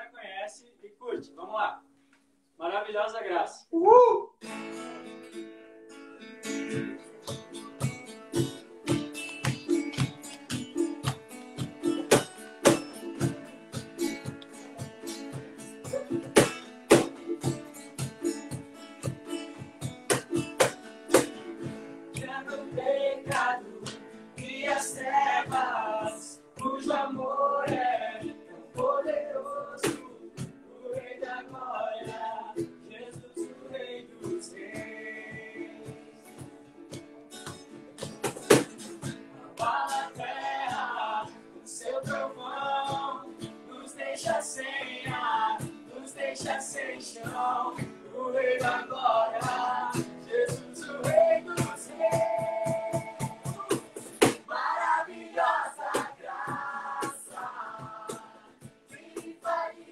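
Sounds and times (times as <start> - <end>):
acoustic guitar strumming: 4.4 - 59.9
sharp knock: 16.4 - 17.1
person singing: 22.2 - 36.3, 39.4 - 59.9.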